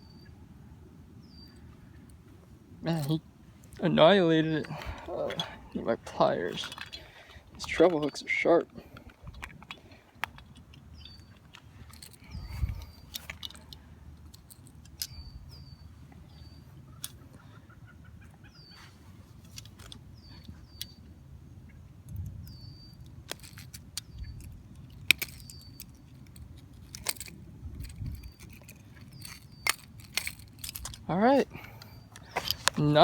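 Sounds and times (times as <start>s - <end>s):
bird chirping: 0.0s - 2.1s, 9.7s - 13.9s, 14.8s - 19.2s, 19.9s - 23.2s, 23.8s - 26.4s, 27.6s - 33.0s
pliers and hooks clicking and rattling: 2.9s - 15.8s, 19.4s - 21.0s, 23.0s - 33.0s.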